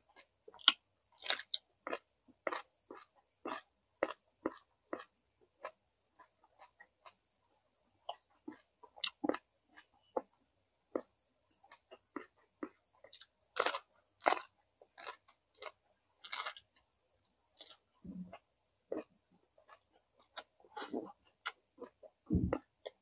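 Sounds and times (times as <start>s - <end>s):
wet chewing crunches: 0.6s - 5.7s, 12.2s - 16.8s.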